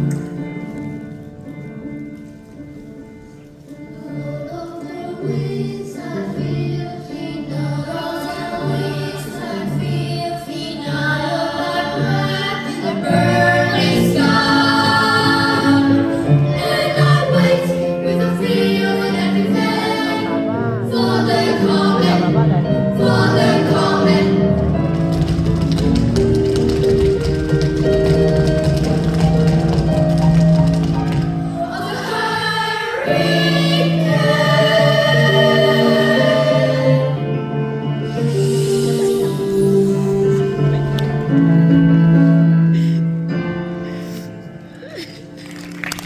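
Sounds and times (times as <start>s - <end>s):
children's choir singing: 3.8s - 25.1s, 31.2s - 41.5s
repeated low accompaniment notes: 12.1s - 43.9s.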